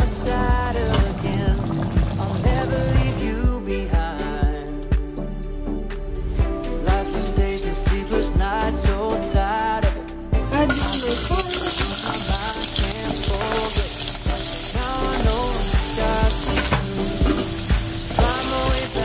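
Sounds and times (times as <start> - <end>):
song with singing and beat: 0.0 - 19.0
carrots sizzling in hot oil: 10.7 - 19.0.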